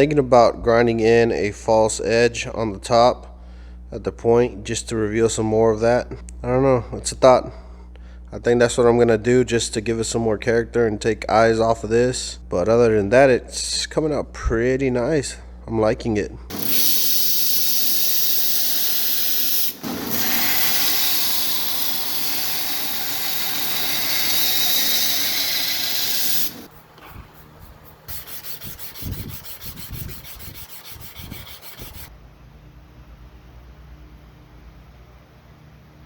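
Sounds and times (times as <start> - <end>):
knife blade grinding on abrasive: 16.5 - 32.1
quick rubbing strokes: 24.1 - 32.1.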